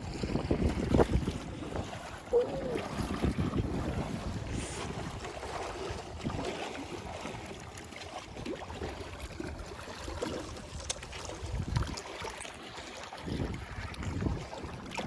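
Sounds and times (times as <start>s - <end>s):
wind rushing over microphone: 0.0s - 5.3s, 13.2s - 14.8s
water washing against boat: 0.0s - 15.0s.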